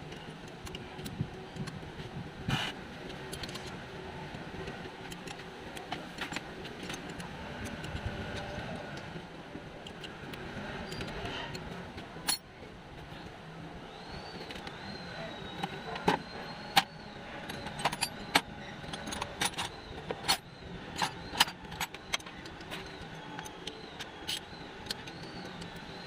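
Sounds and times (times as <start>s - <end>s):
metal tools clinking: 12.2s - 12.4s, 16.7s - 23.6s.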